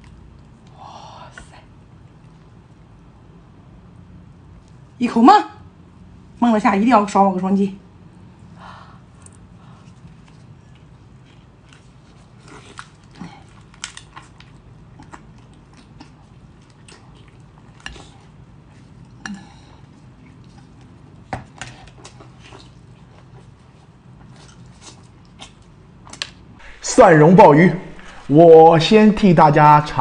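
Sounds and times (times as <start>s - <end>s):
low steady hum: 0.0s - 30.0s
person chewing and smacking: 9.2s - 26.5s.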